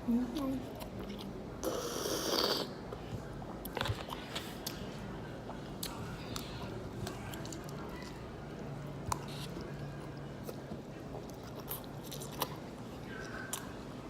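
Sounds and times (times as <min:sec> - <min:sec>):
chewing with small clicks: 0:02.9 - 0:13.8.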